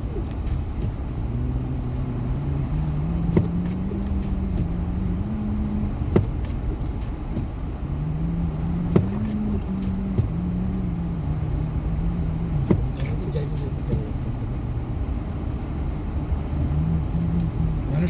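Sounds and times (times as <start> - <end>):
road rumble: 0.0 - 18.0
truck engine hum: 0.0 - 18.0.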